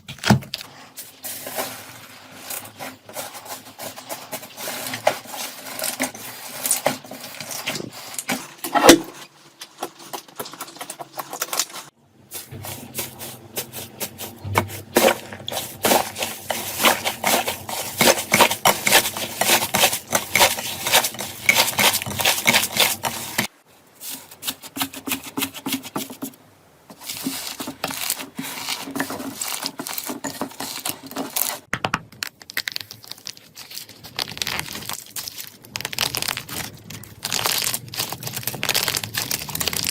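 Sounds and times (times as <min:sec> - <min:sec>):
slime popping and crackling: 0:31.5 - 0:39.9.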